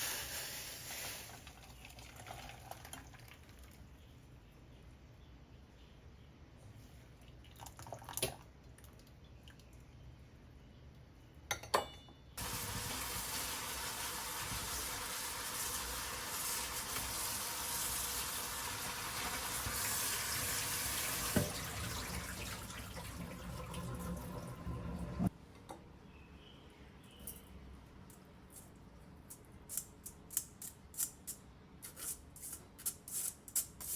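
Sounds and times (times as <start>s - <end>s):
kitchen tap running into sink: 12.4s - 25.3s.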